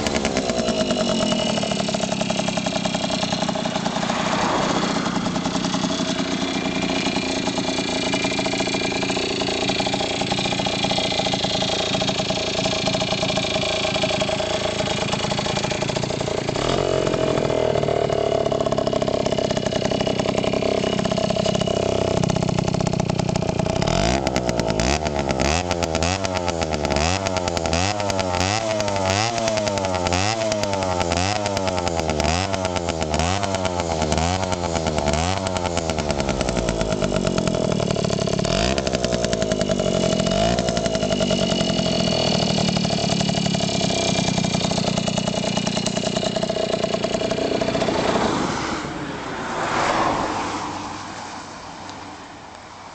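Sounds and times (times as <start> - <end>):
two-stroke engine revving and idling: 0.0 - 52.9.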